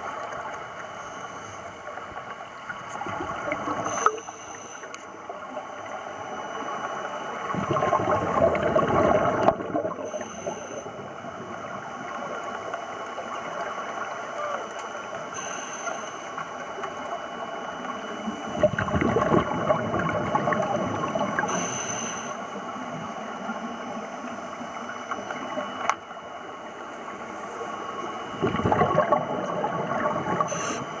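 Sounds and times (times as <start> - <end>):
steady underwater hiss: 0.0 - 31.0
gurgling exhaled bubbles: 7.4 - 12.2, 18.5 - 21.6, 28.3 - 31.0
diver breathing through regulator: 10.1 - 10.9, 30.4 - 31.0.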